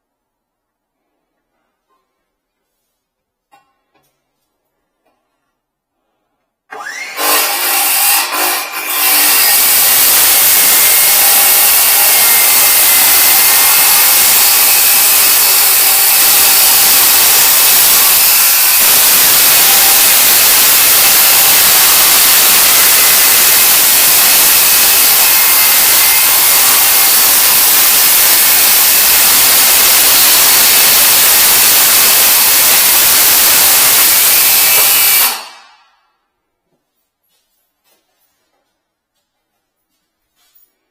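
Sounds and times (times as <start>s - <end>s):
power tool whining: 6.7s - 35.8s.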